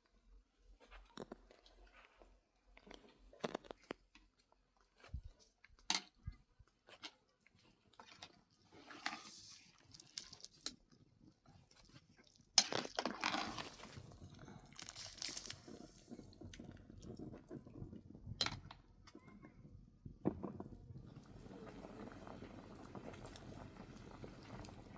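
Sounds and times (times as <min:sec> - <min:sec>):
crunching and rustling: 0:11.6 - 0:17.9.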